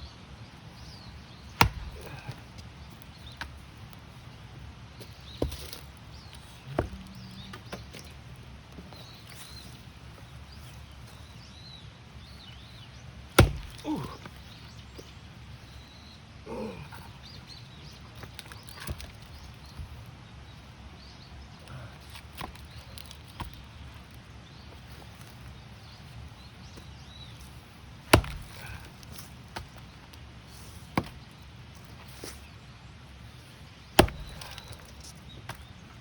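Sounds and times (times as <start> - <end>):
small birds chirping: 0.0 - 36.0
axe striking firewood: 1.4 - 2.6, 5.0 - 8.1, 13.3 - 14.4, 28.0 - 29.9, 30.8 - 31.2, 33.9 - 35.7.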